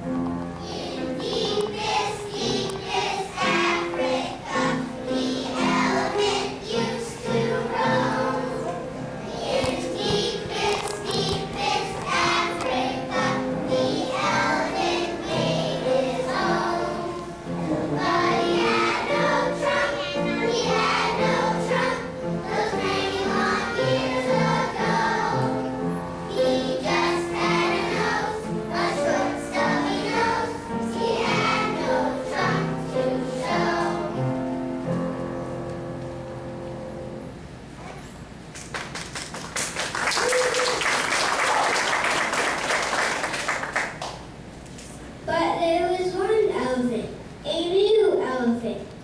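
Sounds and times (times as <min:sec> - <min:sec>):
musical accompaniment: 0:00.0 - 0:37.5
children singing: 0:00.6 - 0:25.7, 0:26.3 - 0:34.3.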